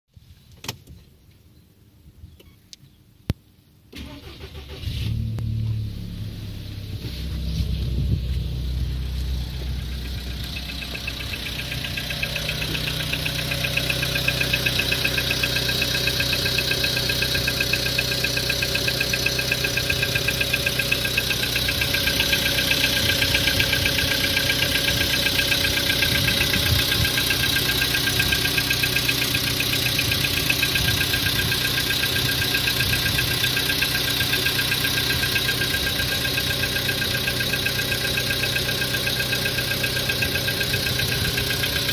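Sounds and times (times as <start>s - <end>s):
car engine running: 4.0s - 41.9s
fast even engine knock: 10.1s - 41.9s.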